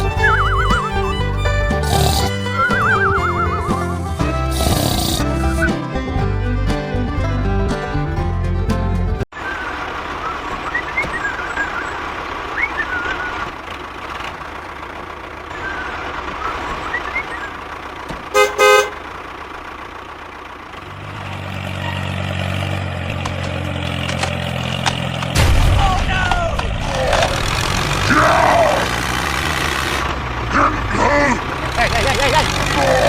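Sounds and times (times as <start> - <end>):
low engine hum: 0.0 - 33.0
vehicle horn toots: 18.3 - 19.1.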